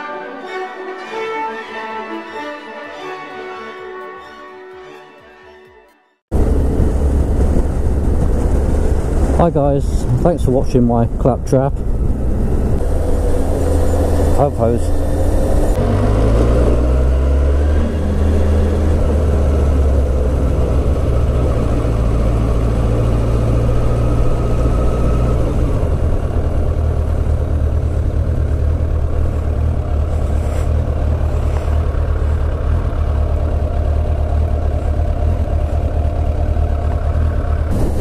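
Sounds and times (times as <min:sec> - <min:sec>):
motorcycle engine running: 0:11.8 - 0:38.0.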